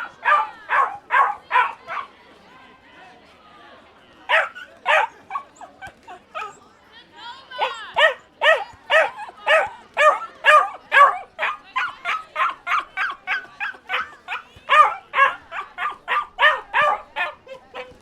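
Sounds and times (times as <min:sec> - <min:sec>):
dog yapping: 0:04.3 - 0:05.5, 0:08.0 - 0:18.0.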